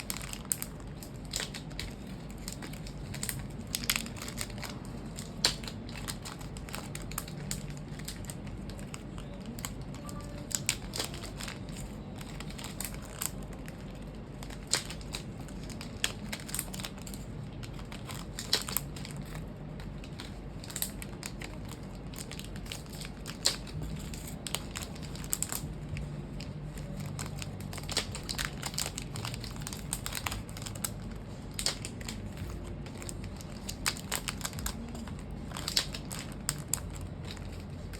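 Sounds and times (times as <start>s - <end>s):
steady low hum: 0.0s - 37.9s
small parts and tools clicking: 14.4s - 26.0s.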